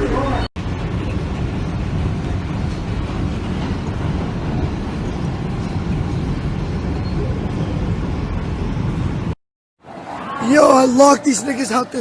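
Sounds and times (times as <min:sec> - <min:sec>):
moving train rumbling: 0:00.0 - 0:09.4.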